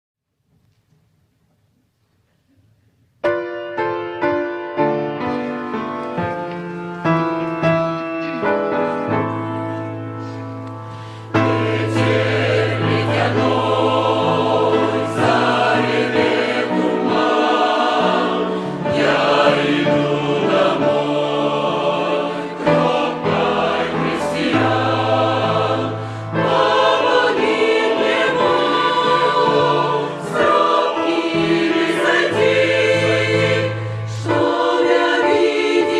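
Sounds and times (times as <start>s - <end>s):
choir singing: 10.2s - 35.9s.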